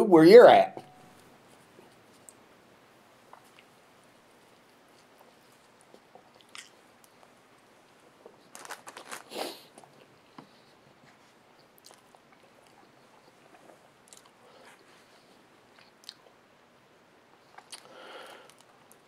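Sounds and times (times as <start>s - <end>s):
man chewing: 3.1s - 10.8s, 11.5s - 16.4s, 17.4s - 19.0s.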